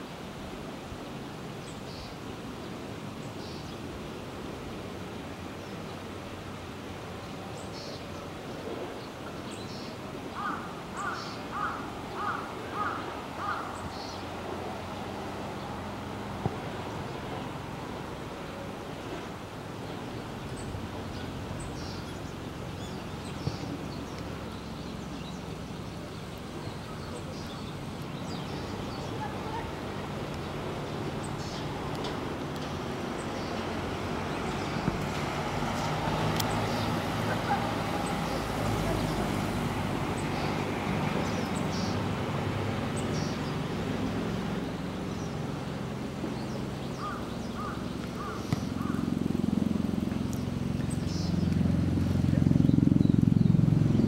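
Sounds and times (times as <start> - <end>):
birds chirping: 7.2 - 54.0
bird calling: 10.4 - 14.2, 46.9 - 49.2.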